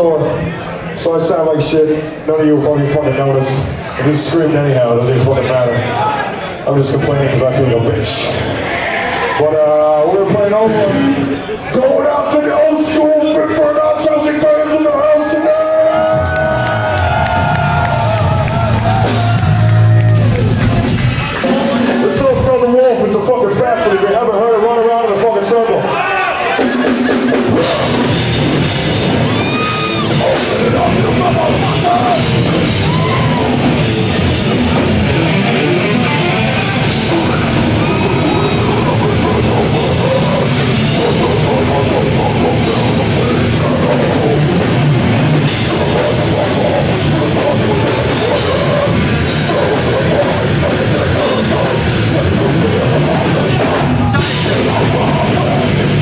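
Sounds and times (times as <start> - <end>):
live heavy metal band: 15.6 - 22.8, 26.4 - 56.0
screamed vocals: 29.2 - 33.8, 36.7 - 44.6, 45.5 - 56.0.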